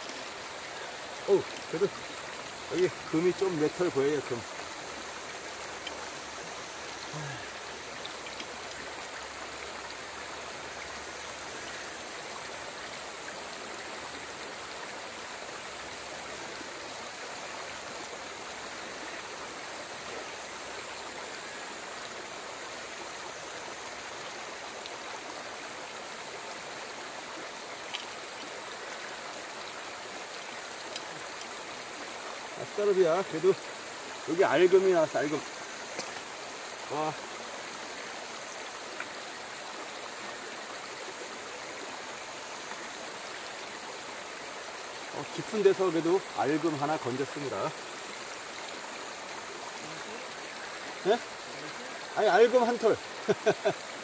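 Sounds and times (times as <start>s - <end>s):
flowing river water: 0.0s - 54.0s
small tick: 5.8s - 6.0s, 8.0s - 8.5s, 27.8s - 28.2s, 30.9s - 31.5s, 35.9s - 36.3s, 39.0s - 39.2s.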